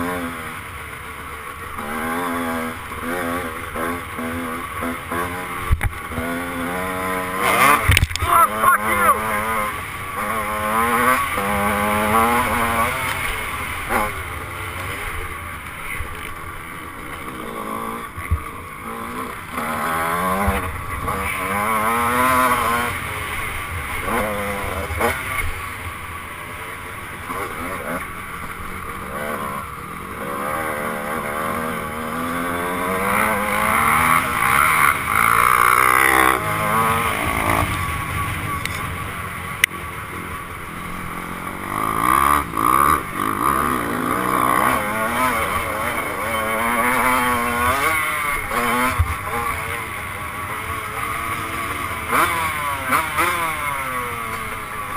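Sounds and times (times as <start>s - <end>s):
two-stroke motorcycle engine revving: 0.0s - 54.9s
wind and riding noise: 0.0s - 54.9s.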